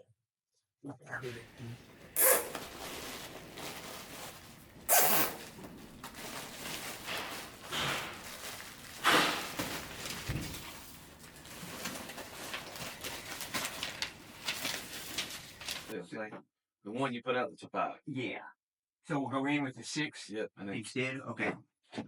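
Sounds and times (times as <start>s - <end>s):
flexible duct rustling and crinkling: 1.2s - 15.9s
short loud rasps: 2.1s - 2.7s, 4.9s - 5.5s.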